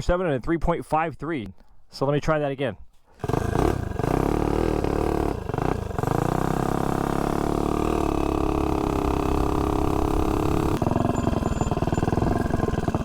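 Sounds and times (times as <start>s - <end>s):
mini bike engine running: 3.2s - 13.0s.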